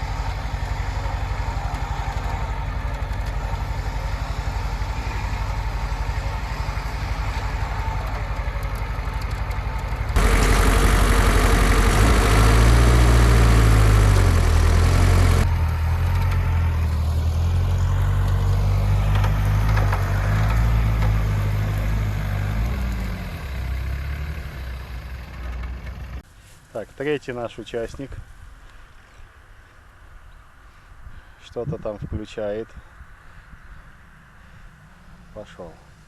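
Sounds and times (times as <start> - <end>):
engine idling and revving: 0.0 - 26.2
loud noisy burst: 10.2 - 15.5.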